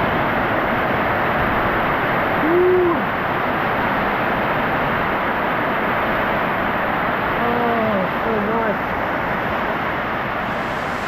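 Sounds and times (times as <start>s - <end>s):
man hooting: 2.4s - 3.1s.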